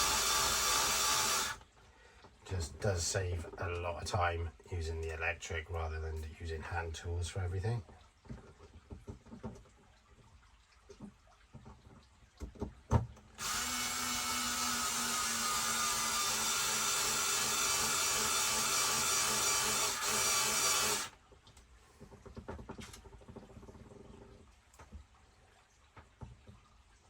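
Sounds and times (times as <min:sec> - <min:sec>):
electric screwdriver running: 0:00.0 - 0:01.6, 0:13.4 - 0:21.1.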